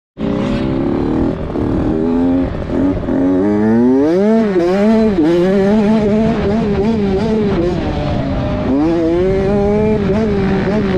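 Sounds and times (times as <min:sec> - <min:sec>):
dirt bike engine revving: 0:00.2 - 0:10.9.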